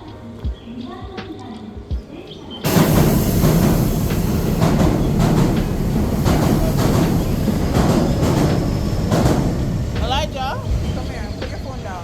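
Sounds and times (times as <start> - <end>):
train rumbling on rails: 2.6 - 12.0
wheels clacking over rail joints: 2.6 - 12.0.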